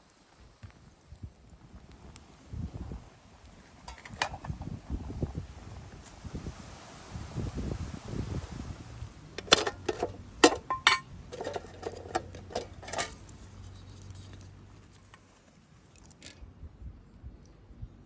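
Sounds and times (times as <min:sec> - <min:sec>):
metal items clinking: 0:03.9 - 0:04.4, 0:09.4 - 0:13.3.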